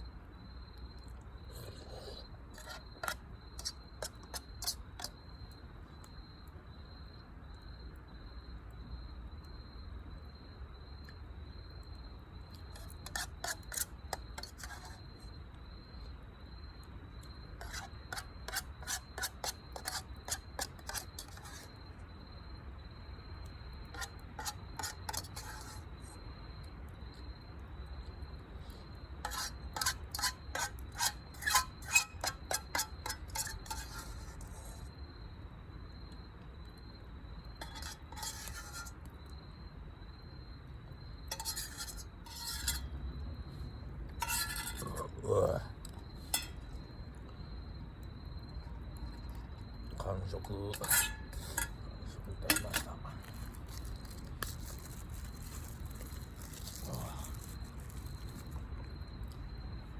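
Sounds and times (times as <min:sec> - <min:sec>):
metal spoon scraping a plate: 0:01.6 - 0:05.2, 0:12.7 - 0:15.0, 0:17.6 - 0:21.7, 0:23.9 - 0:25.9, 0:29.2 - 0:34.9, 0:37.6 - 0:39.0, 0:41.3 - 0:43.0, 0:44.1 - 0:45.6, 0:46.2 - 0:46.7, 0:50.3 - 0:58.5.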